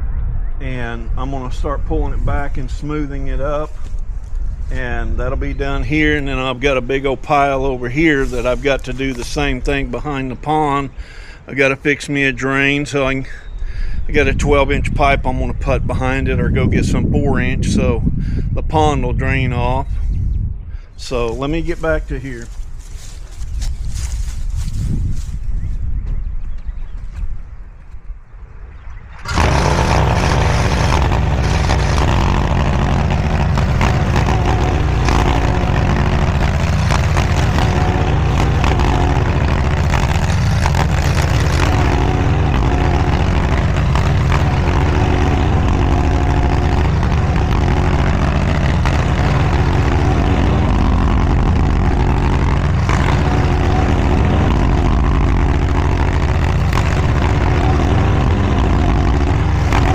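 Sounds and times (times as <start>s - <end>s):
mini skid steer engine running: 29.2s - 59.9s.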